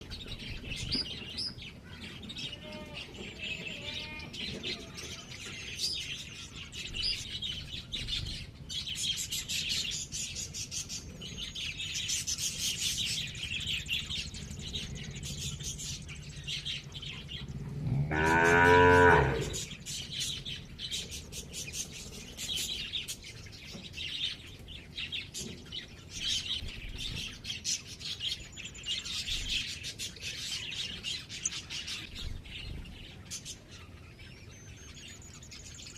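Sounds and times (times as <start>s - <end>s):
small birds chirping: 0.0s - 35.9s
cow mooing: 17.7s - 19.7s.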